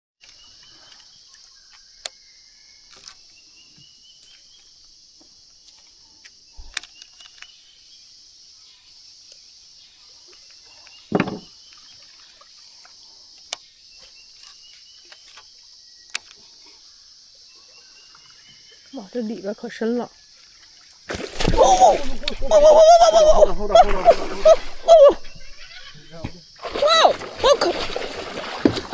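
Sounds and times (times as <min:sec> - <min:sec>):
insect chorus: 0:00.2 - 0:28.9
loud thump: 0:11.1 - 0:11.5
short rising calls: 0:22.5 - 0:26.1.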